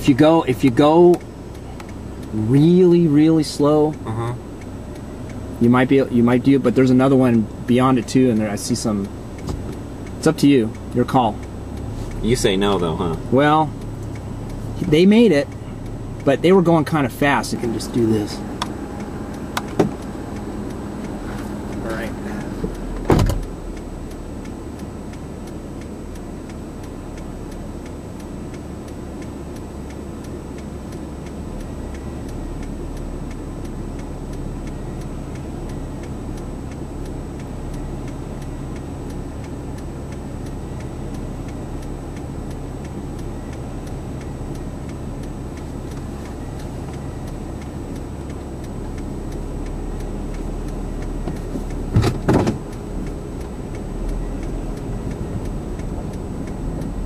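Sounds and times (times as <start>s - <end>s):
car engine idling: 0.0s - 57.0s
turn signal relay ticking: 0.0s - 57.0s.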